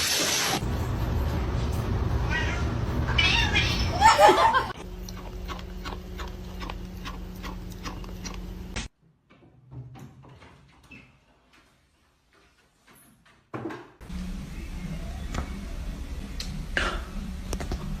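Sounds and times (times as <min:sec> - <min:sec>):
cat yowling: 0:02.2 - 0:04.6.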